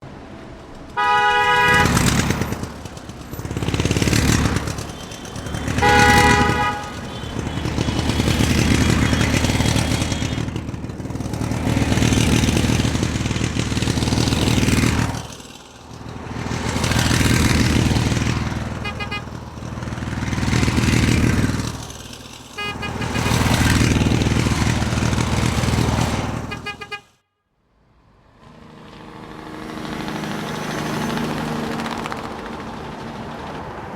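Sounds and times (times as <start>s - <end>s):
horn tooting: 0.9s - 27.4s
vehicle engine revving: 1.0s - 27.0s.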